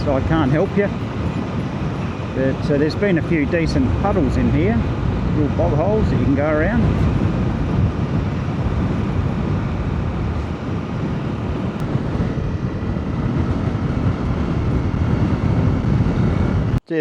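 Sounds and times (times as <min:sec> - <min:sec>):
motorcycle engine: 0:00.0 - 0:16.8
wind roar in helmet microphone: 0:00.0 - 0:16.9.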